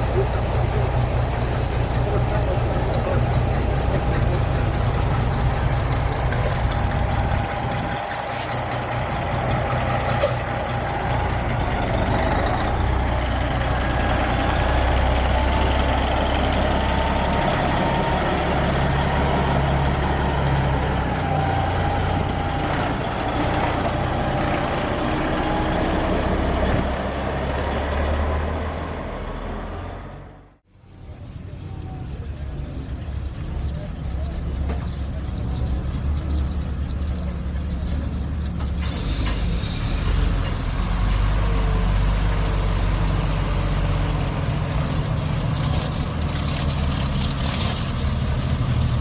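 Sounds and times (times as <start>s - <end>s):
diesel truck engine droning: 0.0s - 49.0s.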